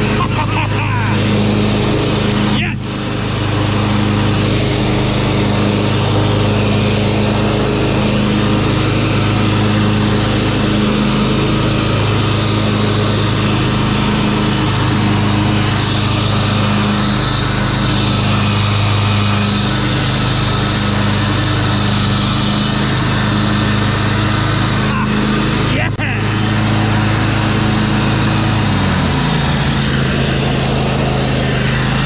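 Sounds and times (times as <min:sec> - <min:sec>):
riding lawn mower engine: 0:00.0 - 0:32.0.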